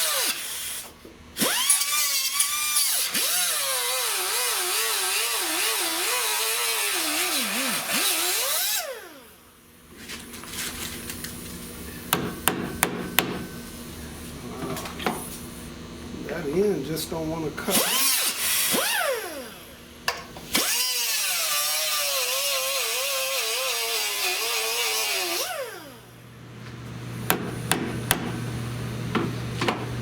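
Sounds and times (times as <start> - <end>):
power cutoff tool cutting metal: 1.4 - 9.1, 17.5 - 19.7, 20.5 - 26.0
sharp knocks: 12.1 - 13.5, 27.3 - 28.4.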